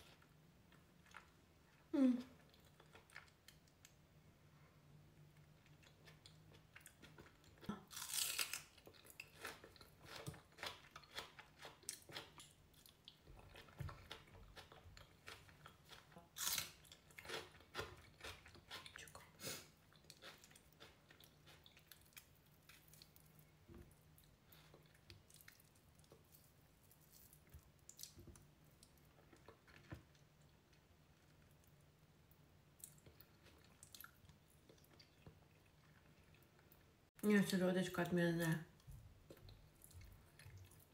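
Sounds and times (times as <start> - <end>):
wet chewing with crunching bites: 2.4 - 4.0, 5.3 - 31.8, 38.8 - 40.9.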